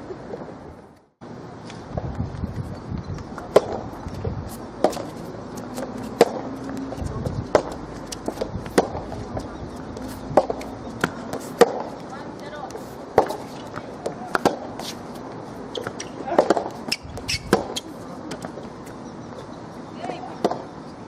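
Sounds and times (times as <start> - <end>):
ball bouncing: 3.2 - 3.8, 4.8 - 15.0, 15.7 - 19.0
racket hitting tennis ball: 3.3 - 19.0, 20.2 - 20.7.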